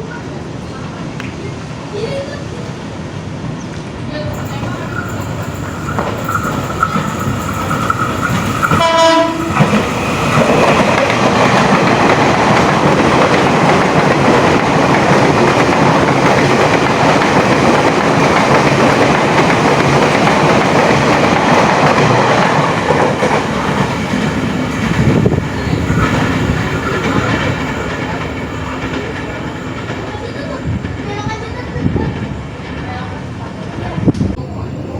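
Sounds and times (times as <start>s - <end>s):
train wheels rushing on rails: 0.2s - 34.9s
train horn blast: 8.3s - 10.1s.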